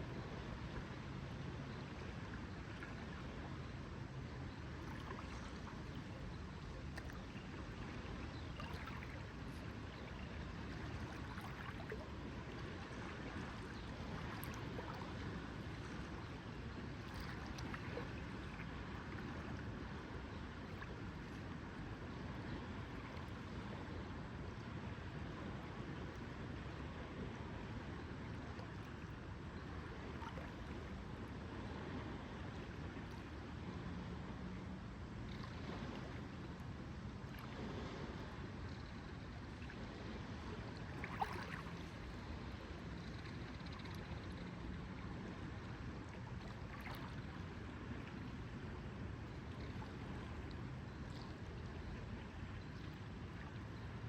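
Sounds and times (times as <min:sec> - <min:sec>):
water lapping at shore: 0:00.0 - 0:54.0
small splashes and drips: 0:06.8 - 0:09.7, 0:10.6 - 0:16.4, 0:17.0 - 0:19.6, 0:40.8 - 0:42.0, 0:46.0 - 0:48.3
faint small ticks: 0:06.9 - 0:07.2.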